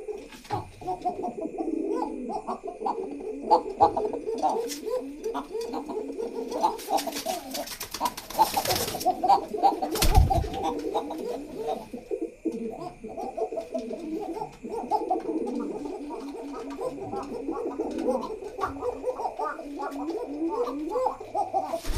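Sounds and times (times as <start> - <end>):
pigeons cooing: 0.0 - 21.9
rustling: 21.6 - 21.9.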